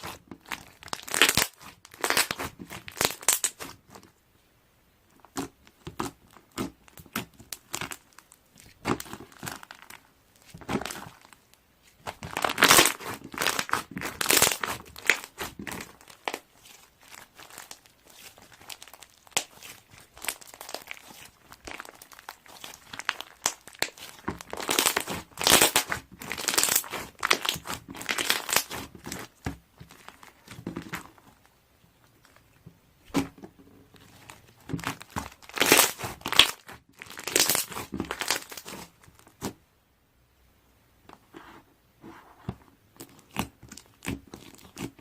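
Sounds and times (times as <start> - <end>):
crinkly material crumpling: 0.0 - 4.1, 7.5 - 33.2, 33.9 - 39.4.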